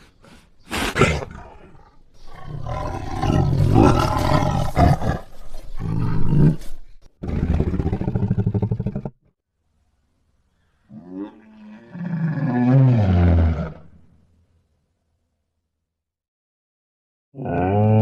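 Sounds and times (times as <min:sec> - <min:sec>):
big cat roaring: 0:00.9 - 0:06.6, 0:07.2 - 0:09.2, 0:10.9 - 0:13.8.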